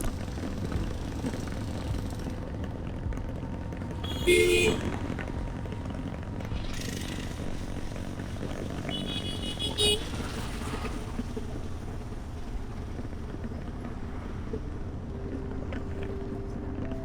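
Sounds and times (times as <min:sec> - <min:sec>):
road traffic rumble: 0:00.0 - 0:17.0
vehicle horn honking: 0:04.0 - 0:05.0, 0:08.9 - 0:10.6.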